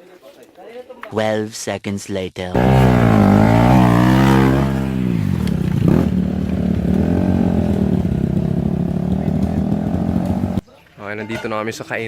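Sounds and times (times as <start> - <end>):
motorcycle engine running: 2.6 - 10.6.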